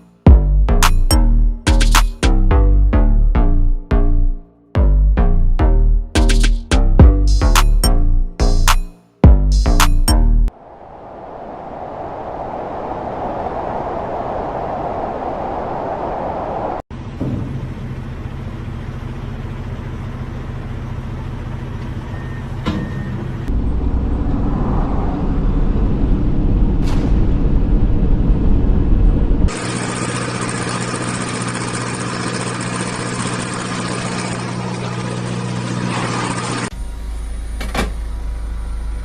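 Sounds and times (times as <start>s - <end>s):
road noise: 10.5s - 39.0s
vehicle engine: 16.9s - 39.0s.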